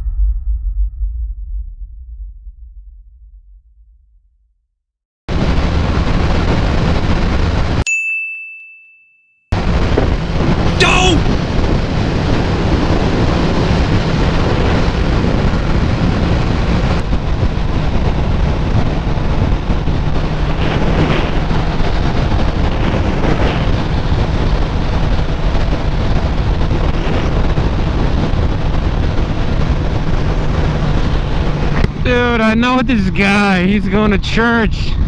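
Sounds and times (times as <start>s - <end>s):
wind rushing over microphone: 5.3s - 7.8s, 9.6s - 35.0s
motorcycle engine hum: 9.6s - 32.9s.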